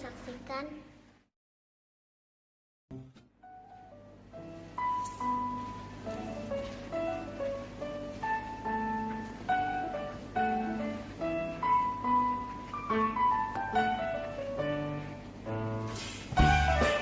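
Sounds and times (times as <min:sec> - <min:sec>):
keyboard melody: 0:02.9 - 0:15.8, 0:16.4 - 0:17.0
bass and drum hits: 0:16.3 - 0:17.0.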